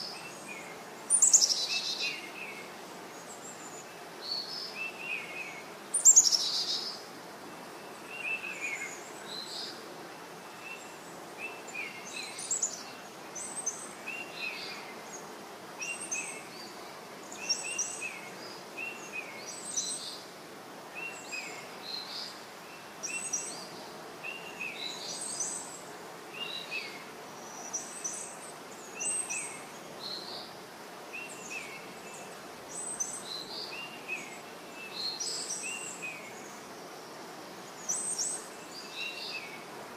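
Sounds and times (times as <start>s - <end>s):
bird chirping: 0.0s - 7.0s.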